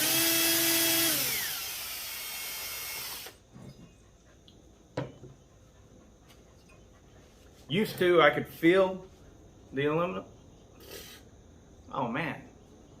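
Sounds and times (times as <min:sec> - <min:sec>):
power tool motor whine: 0:00.0 - 0:03.4.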